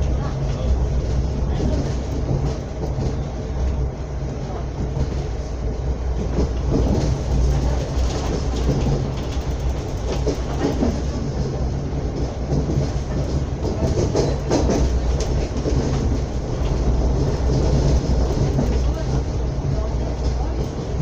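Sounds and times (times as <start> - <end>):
train wheels rumbling on rails: 0.0 - 21.0
clicks over rail joints: 6.2 - 19.4.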